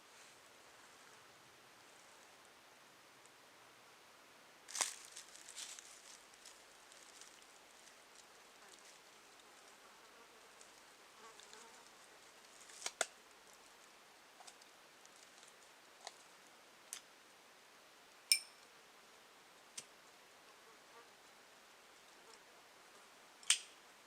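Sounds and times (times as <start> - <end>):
faint steady hiss: 0.0 - 24.0
metallic clink: 18.3 - 18.6.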